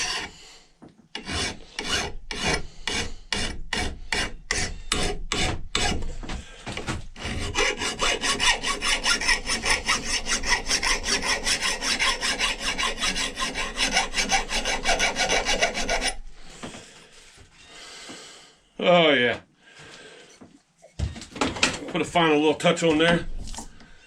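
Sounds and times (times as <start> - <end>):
sanding wood by hand: 1.2 - 6.2, 7.2 - 16.2.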